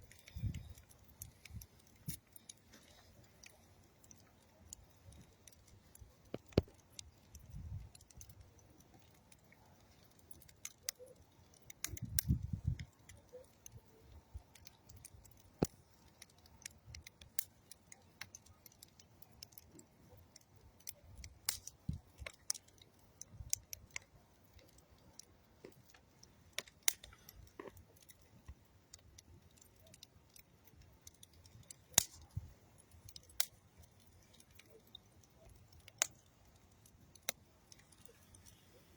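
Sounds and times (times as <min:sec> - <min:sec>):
campfire crackling: 0:00.0 - 0:38.9
sharp pops of fire: 0:05.0 - 0:08.6, 0:10.3 - 0:19.8, 0:20.8 - 0:24.8, 0:25.6 - 0:36.2.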